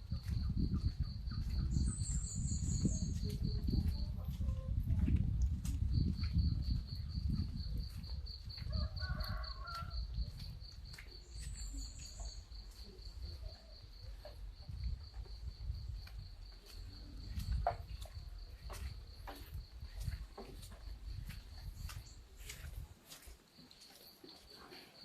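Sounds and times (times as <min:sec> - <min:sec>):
high bird chirp: 0:01.6 - 0:03.2.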